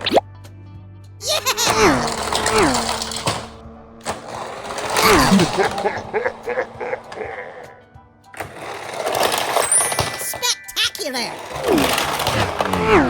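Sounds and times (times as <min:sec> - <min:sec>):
clattering noise: 0:11.4 - 0:13.0.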